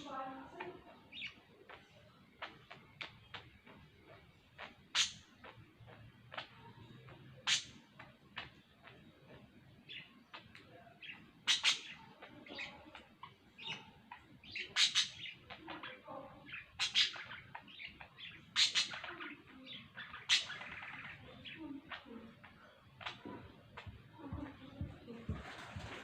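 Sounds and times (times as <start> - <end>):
budgerigars chirping and chattering: 0.0 - 26.0.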